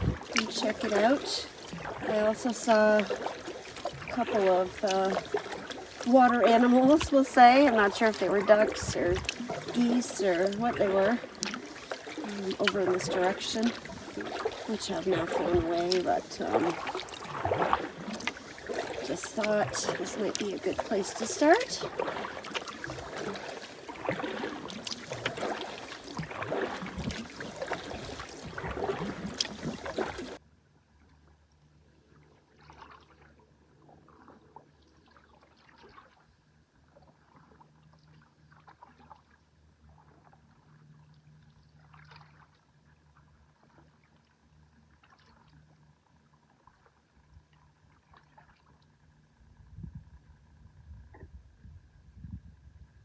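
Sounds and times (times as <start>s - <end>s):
faint water drips and taps: 0.0s - 30.4s
paddle strokes splashing water: 0.0s - 30.4s, 32.3s - 49.4s.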